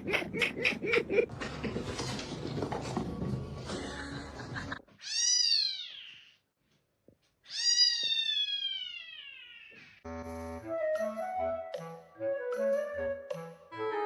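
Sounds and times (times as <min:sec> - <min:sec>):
cat meowing: 0:07.5 - 0:09.2
music with woodwind notes: 0:10.4 - 0:14.0.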